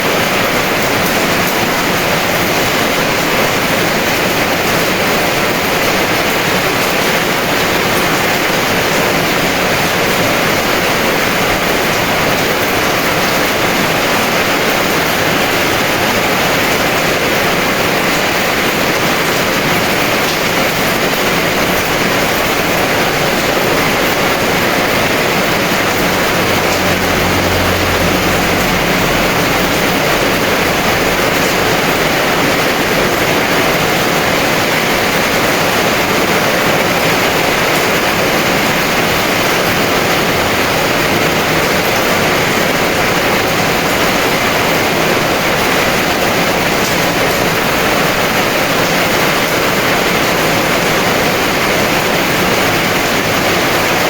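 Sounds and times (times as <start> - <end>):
heavy rain downpour: 0.0 - 54.0
low rumble: 23.9 - 32.6.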